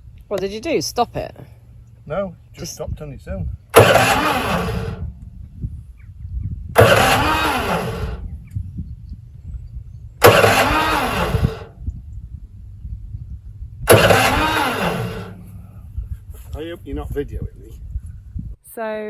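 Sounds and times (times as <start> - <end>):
low engine rumble: 0.0 - 18.6
engine pull-start cranking: 3.7 - 5.1, 6.8 - 8.2, 10.2 - 11.7, 13.8 - 15.8.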